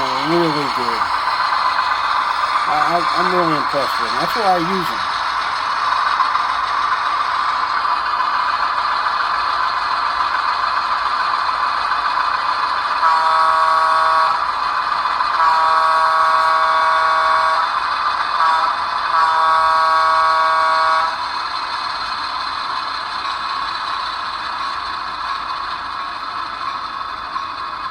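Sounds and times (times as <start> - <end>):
simulated diesel engine running: 0.0 - 27.9
train horn: 13.0 - 14.4, 15.4 - 17.6, 18.4 - 21.1.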